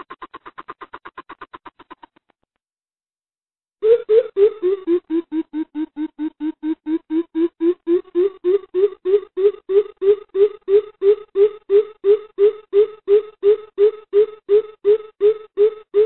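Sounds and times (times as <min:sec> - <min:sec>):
bird deep hooting call: 0:03.8 - 0:16.0.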